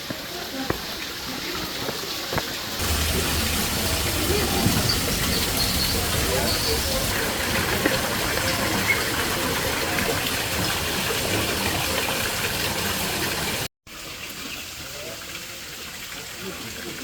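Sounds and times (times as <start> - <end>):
running water: 0.0 - 17.0.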